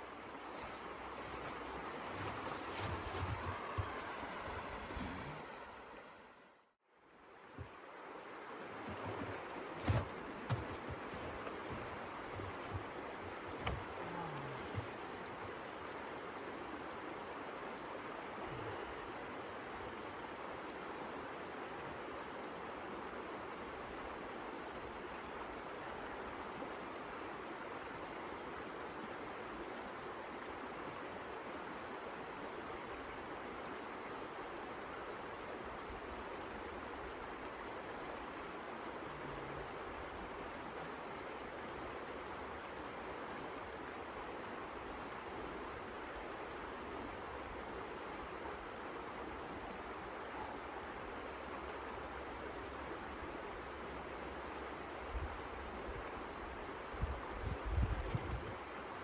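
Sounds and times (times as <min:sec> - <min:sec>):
blizzard wind blowing: 0:00.0 - 0:06.6, 0:57.0 - 0:59.0.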